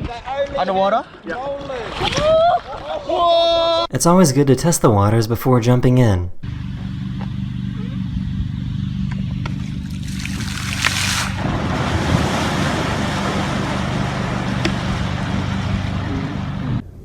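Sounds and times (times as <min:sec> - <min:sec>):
boat motor humming: 0:06.4 - 0:16.8
water splashing: 0:09.6 - 0:16.5
churning water rushing: 0:09.6 - 0:16.8.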